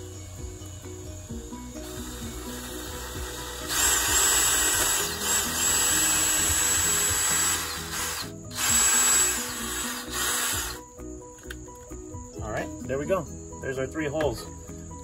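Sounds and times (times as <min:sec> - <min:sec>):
background music: 0:00.0 - 0:15.0
cordless drill whining: 0:01.3 - 0:10.9.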